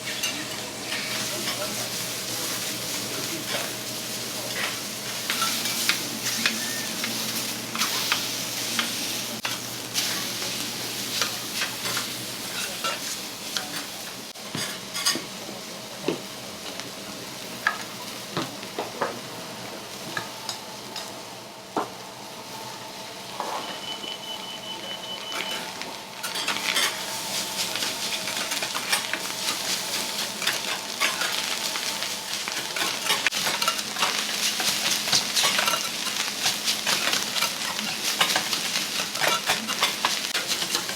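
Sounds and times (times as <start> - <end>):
food sizzling on a griddle: 0.0 - 40.9
metal spatulas scraping a griddle: 32.5 - 40.9.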